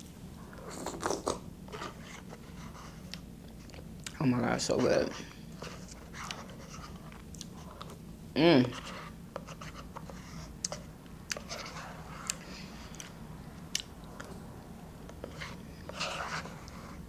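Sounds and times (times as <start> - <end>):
person chewing: 0.5 - 1.4, 5.8 - 8.0, 12.2 - 14.4.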